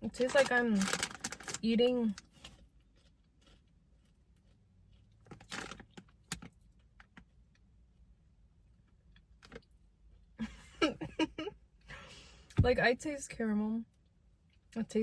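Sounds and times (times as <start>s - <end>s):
person chewing crunchy snack: 2.4s - 6.2s.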